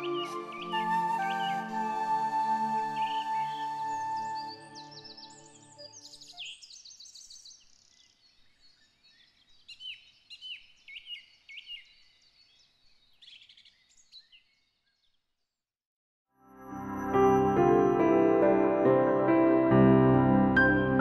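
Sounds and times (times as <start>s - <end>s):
woodland birds singing: 0.0s - 15.5s.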